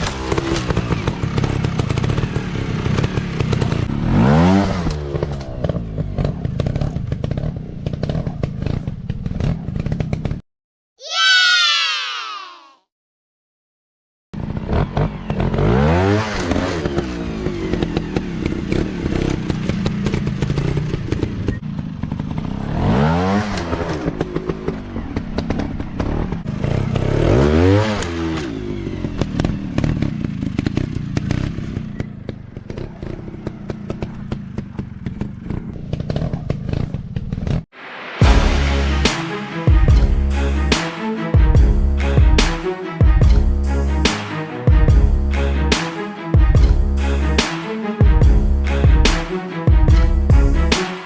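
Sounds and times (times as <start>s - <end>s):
bikes clattering and knocking: 0.0s - 4.0s, 4.8s - 10.4s, 16.4s - 22.8s, 23.4s - 27.2s, 28.0s - 37.6s
motocross bike engines revving: 0.0s - 10.4s, 14.4s - 37.6s.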